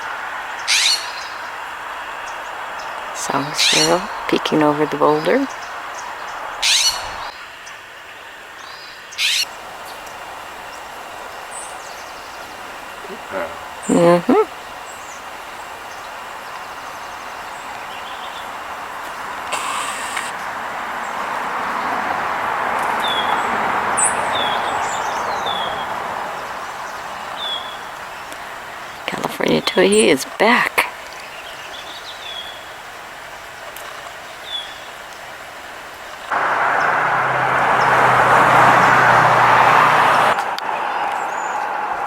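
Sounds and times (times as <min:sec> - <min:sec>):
bird high calls: 0:00.0 - 0:22.0, 0:22.8 - 0:32.8
passing vehicle road noise: 0:00.0 - 0:29.1, 0:36.3 - 0:42.0
songbird chirps: 0:00.0 - 0:42.0
faint bird chirps: 0:05.0 - 0:20.4.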